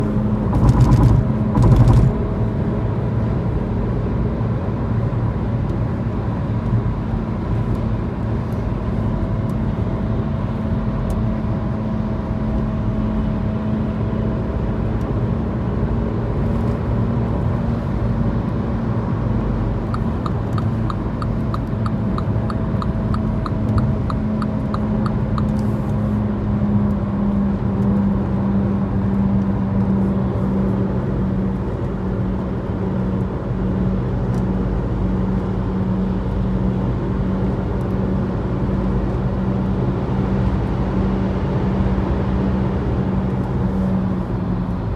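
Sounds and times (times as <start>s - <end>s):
car humming over road rumble: 0.0s - 44.9s
regular ticking: 19.9s - 25.5s.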